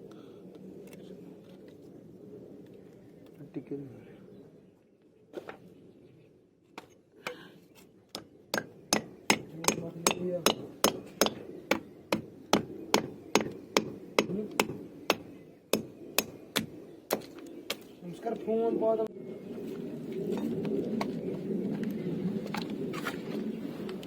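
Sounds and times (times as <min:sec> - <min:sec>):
hammer striking wood: 0:08.1 - 0:17.3.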